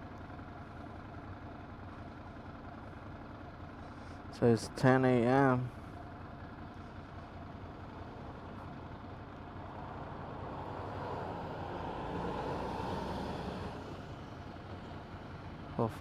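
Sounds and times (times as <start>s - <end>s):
road and wind noise: 6.0s - 16.0s.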